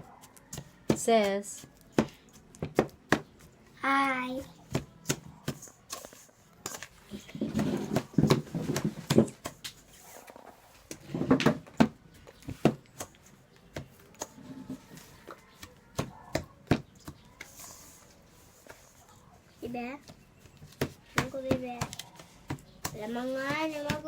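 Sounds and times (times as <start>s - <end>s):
scraping in mixing bowl: 7.1s - 9.2s
utensils clicking and knocking on bowl: 10.9s - 17.6s.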